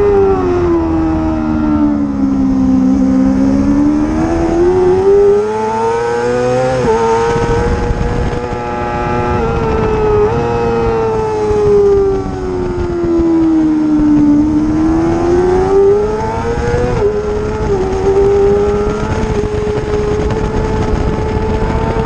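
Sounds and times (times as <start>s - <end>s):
racing motorcycle engine high revs: 0.0s - 22.0s.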